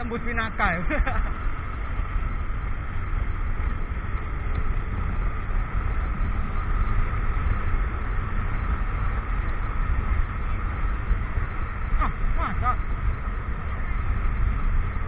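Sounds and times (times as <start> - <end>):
motorcycle engine drone: 0.0 - 15.0.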